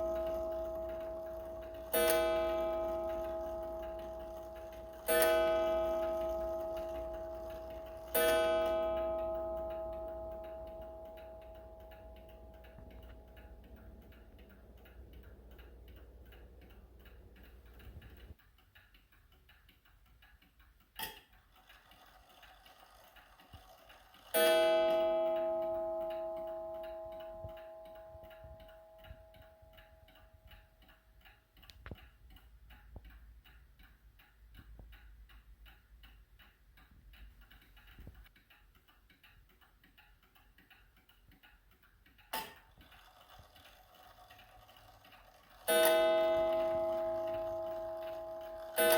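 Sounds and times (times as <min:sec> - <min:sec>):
ringing tone with low hum: 0:00.0 - 0:18.2, 0:45.6 - 0:48.9
clock striking: 0:00.0 - 0:18.4, 0:21.0 - 0:30.9, 0:42.3 - 0:48.9
clock ticking: 0:00.0 - 0:48.9.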